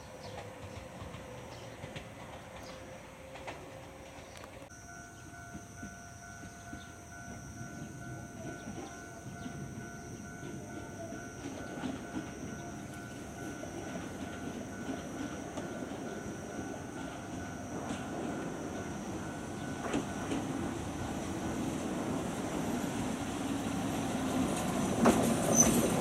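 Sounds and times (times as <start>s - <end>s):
train wheels rumbling on rails: 0.0s - 26.0s
level crossing alarm tone: 4.7s - 21.6s.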